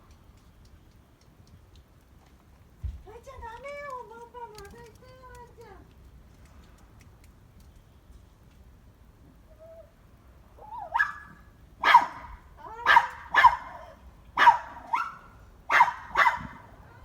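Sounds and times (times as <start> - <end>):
small dog yapping: 10.6 - 16.7.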